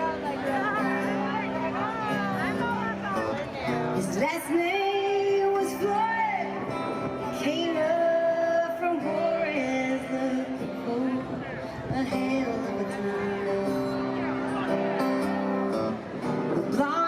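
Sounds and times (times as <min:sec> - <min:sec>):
live country band playing: 0:00.0 - 0:17.0
woman singing: 0:04.0 - 0:06.6, 0:07.4 - 0:14.0, 0:16.5 - 0:17.0.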